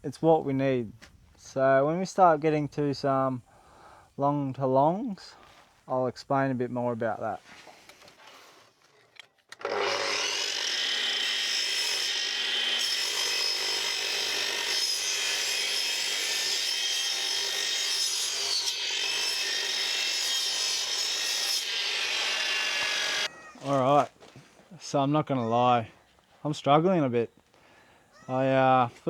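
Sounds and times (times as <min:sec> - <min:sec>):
power saw cutting wood: 0:09.6 - 0:23.3.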